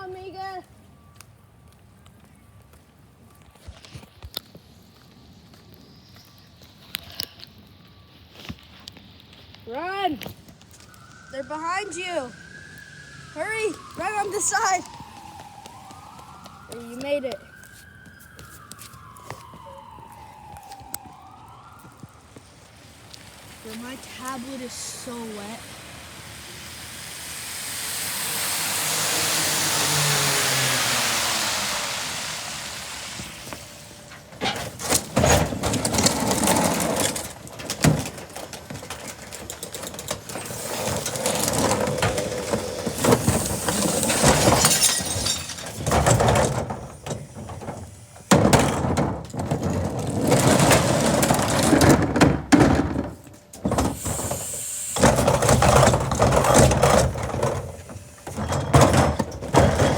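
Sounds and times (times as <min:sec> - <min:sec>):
trash crunching: 0:08.2 - 0:27.2, 0:29.7 - 0:59.9
vehicle hissing past on wet road: 0:12.4 - 0:14.0, 0:22.5 - 0:34.1, 0:53.9 - 0:55.6
garbage truck clanking: 0:23.4 - 0:59.9.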